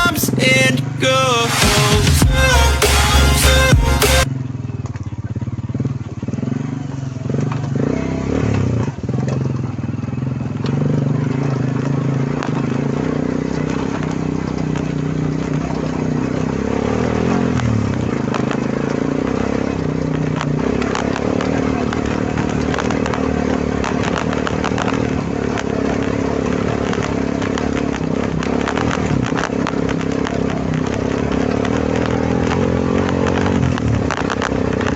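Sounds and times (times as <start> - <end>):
quad bike engine running: 0.0 - 34.9
clatter: 4.3 - 34.9.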